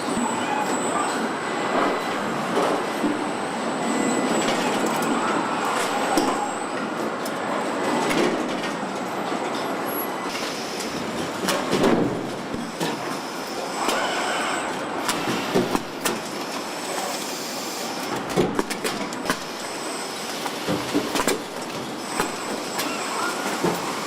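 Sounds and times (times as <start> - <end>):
machinery clanks and clicks: 0.0 - 24.0.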